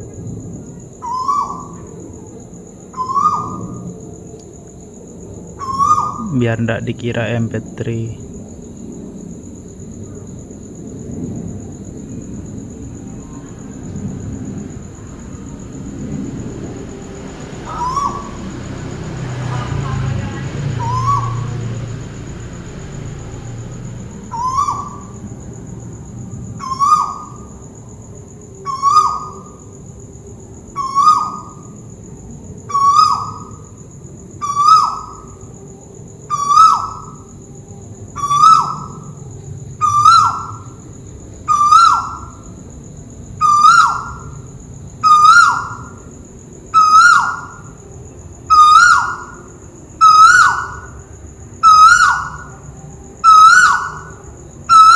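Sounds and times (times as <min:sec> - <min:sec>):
bird whistling downward note: 0:17.7 - 0:18.4, 0:24.3 - 0:25.1.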